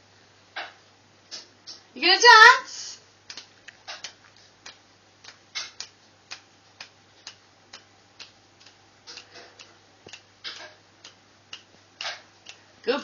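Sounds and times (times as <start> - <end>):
fingers snapping: 3.2 - 12.6.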